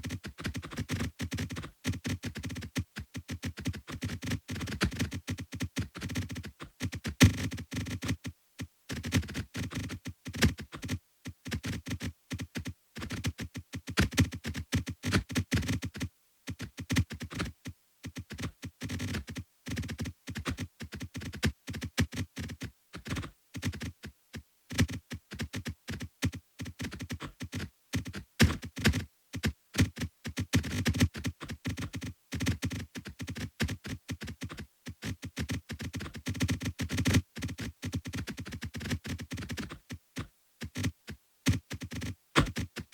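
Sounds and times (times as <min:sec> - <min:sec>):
synthesized clicks and thuds: 0:24.7 - 0:42.9.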